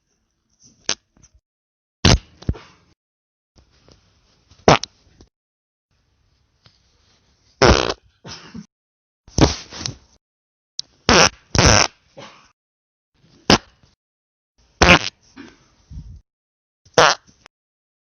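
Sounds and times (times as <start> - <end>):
farts: 7.6 - 8.0, 11.1 - 12.0, 14.8 - 15.2, 17.0 - 17.4.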